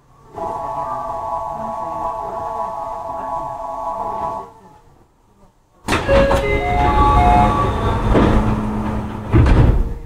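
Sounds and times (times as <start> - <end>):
electric train noise: 0.0 - 4.6, 5.9 - 10.0.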